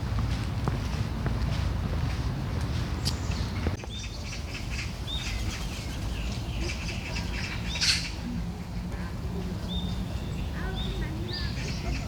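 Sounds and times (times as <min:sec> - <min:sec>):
birds chirping: 0:03.0 - 0:08.3, 0:08.9 - 0:12.0.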